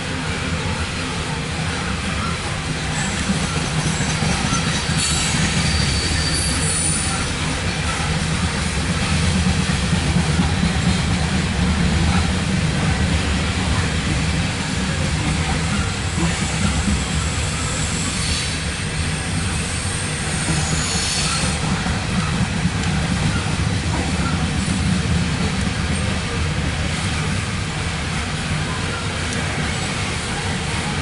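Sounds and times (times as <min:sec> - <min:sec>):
freight train rumbling past: 0:00.0 - 0:31.0
wheel squeals: 0:02.9 - 0:07.3, 0:17.0 - 0:22.3.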